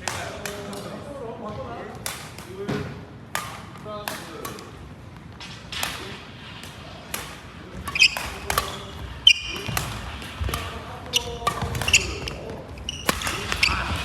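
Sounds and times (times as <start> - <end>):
racket hitting shuttlecock: 0.0 - 0.8, 2.0 - 4.8, 5.4 - 14.0
shoes squeaking on floor: 7.7 - 14.0.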